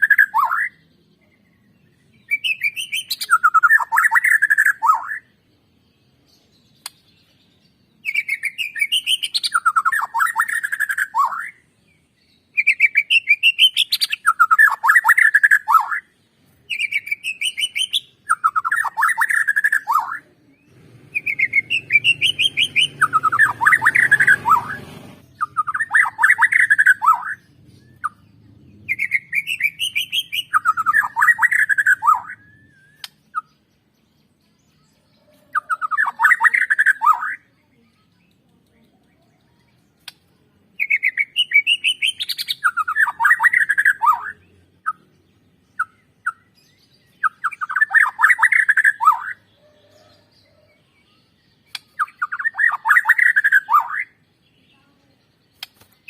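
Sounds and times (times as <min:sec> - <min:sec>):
songbird singing with trills: 0:00.0 - 0:56.0.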